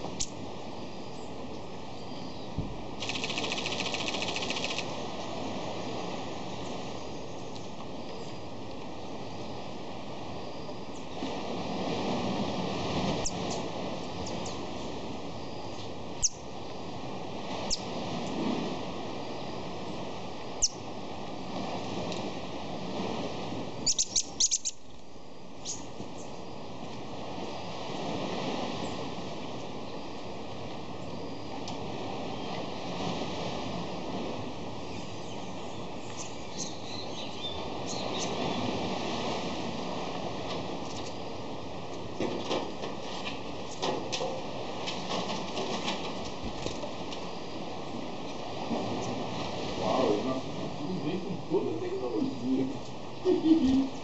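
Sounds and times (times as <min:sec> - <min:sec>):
surf on a beach: 0:00.0 - 0:54.0
bird high-pitched calls: 0:20.6 - 0:20.8, 0:23.8 - 0:24.8, 0:34.9 - 0:38.4
high bird chirps: 0:23.9 - 0:24.8.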